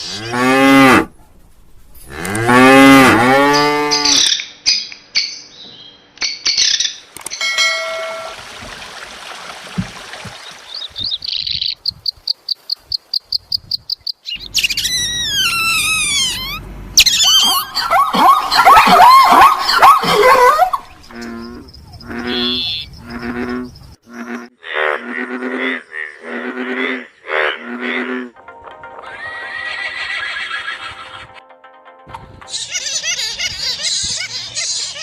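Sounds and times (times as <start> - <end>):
high chirping bird trill: 10.4 - 24.4
falling whistled bird calls: 14.0 - 19.9
burst of tangled bird calls: 14.3 - 23.6
short lower-pitched calls: 14.4 - 19.8, 22.2 - 22.9.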